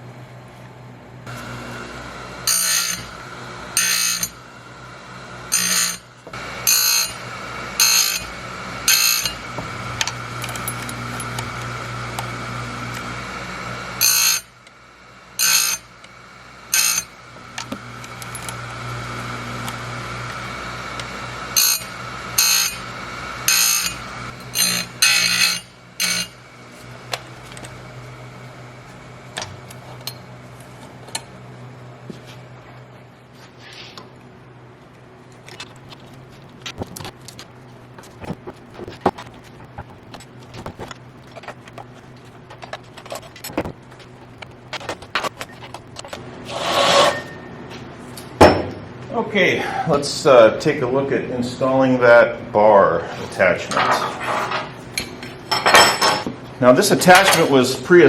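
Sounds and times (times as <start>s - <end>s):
chain grinder humming: 1.2s - 31.4s, 35.3s - 47.5s
grinding wheel biting metal: 1.3s - 30.3s, 36.4s - 47.4s.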